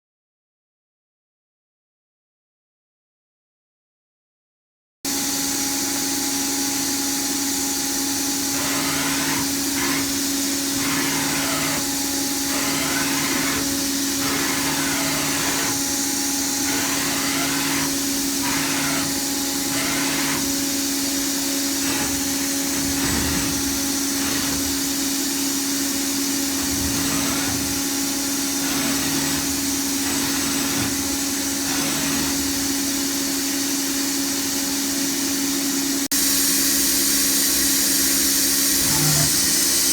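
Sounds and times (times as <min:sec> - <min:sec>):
machine motor hum and hiss: 0:05.1 - 0:39.9
machine sounds switching on and off: 0:05.9 - 0:34.3, 0:36.2 - 0:39.9.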